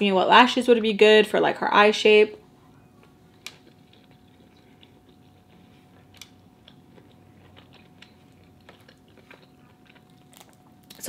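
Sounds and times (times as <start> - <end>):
quiet chewing: 2.6 - 11.0.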